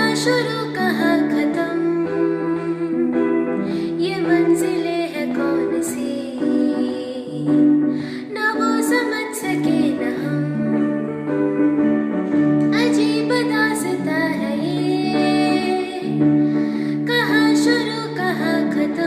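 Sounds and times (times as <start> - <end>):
woman singing: 0.0 - 11.2, 12.7 - 19.0
sustained keyboard chords: 0.0 - 19.0.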